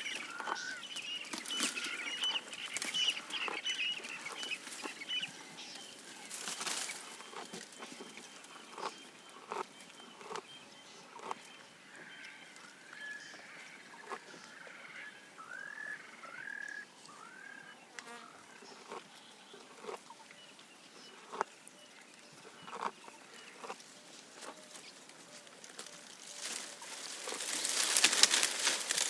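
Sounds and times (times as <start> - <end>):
birds clucking: 0.0 - 20.2, 22.4 - 25.0, 25.8 - 29.0
bird chirping calls: 0.0 - 25.4
twigs snapping: 25.6 - 29.0.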